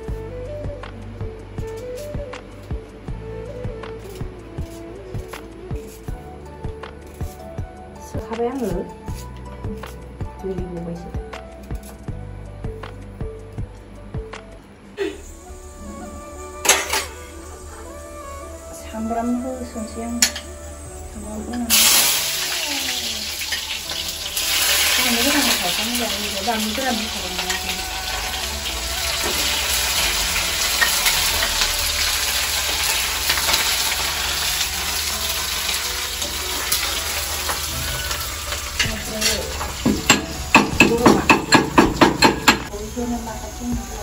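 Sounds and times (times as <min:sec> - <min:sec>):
onions sizzling in hot oil: 0:18.4 - 0:44.0
sharp knocks: 0:39.8 - 0:42.7.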